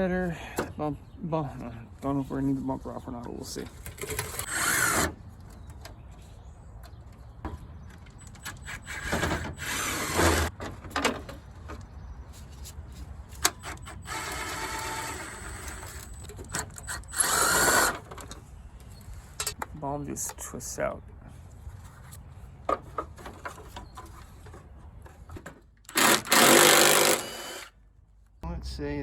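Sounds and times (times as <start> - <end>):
power drill whirring: 4.2 - 5.1, 8.5 - 10.5, 13.9 - 18.0, 25.9 - 27.8.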